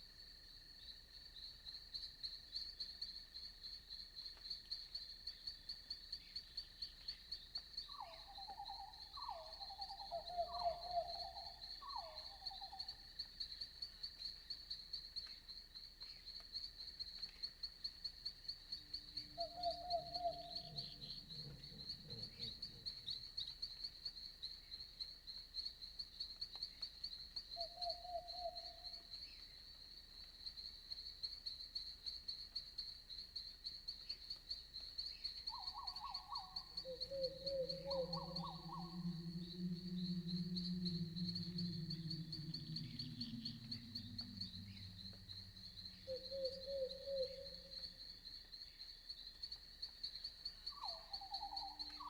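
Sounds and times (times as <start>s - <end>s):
high-pitched insect chorus: 0.0s - 52.0s
trilling frog calls: 19.4s - 23.1s, 35.5s - 48.1s
deeper animal call: 36.9s - 47.7s.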